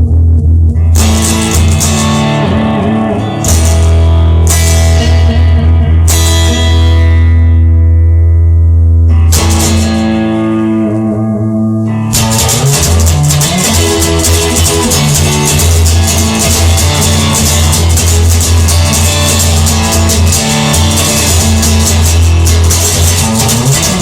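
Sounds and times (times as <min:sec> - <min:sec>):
strummed guitar: 0:00.0 - 0:24.0
sustained guitar and bass chords: 0:00.0 - 0:24.0
drums: 0:00.5 - 0:06.8, 0:09.3 - 0:10.2, 0:12.1 - 0:24.0.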